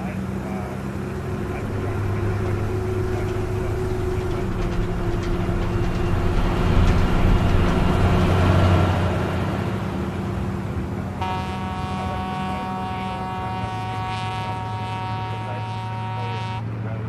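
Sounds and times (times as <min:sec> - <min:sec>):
vehicle engine running: 0:00.0 - 0:17.0
two-note vehicle horn: 0:11.2 - 0:16.9.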